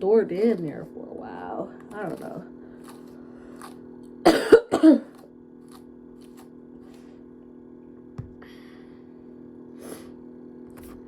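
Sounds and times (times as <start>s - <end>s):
woman coughing: 4.2s - 5.2s.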